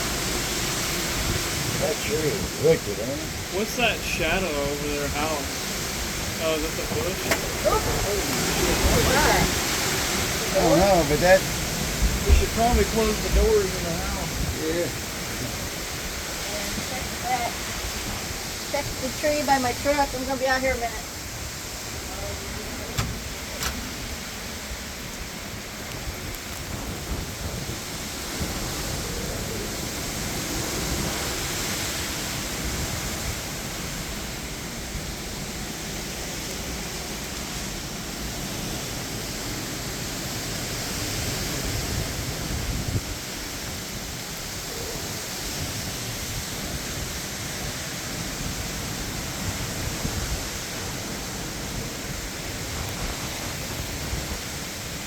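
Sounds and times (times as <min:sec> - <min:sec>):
wind and rain rushing: 0:00.0 - 0:55.0
wind rumbling on microphone: 0:00.0 - 0:55.0.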